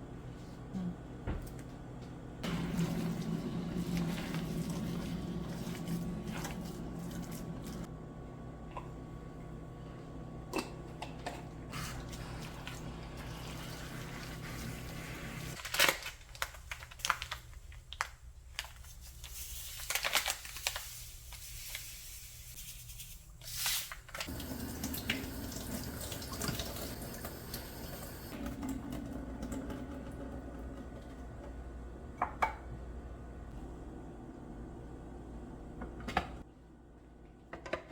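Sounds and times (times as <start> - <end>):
kitchen hum: 0.0 - 37.9
tap water running into sink: 24.3 - 30.2.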